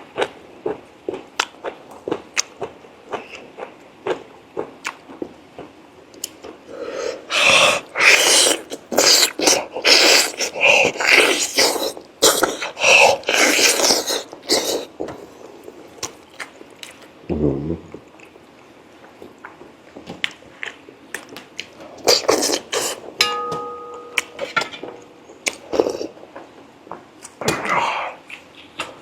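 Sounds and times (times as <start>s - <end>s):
slurping and sucking at meat: 6.9s - 14.9s.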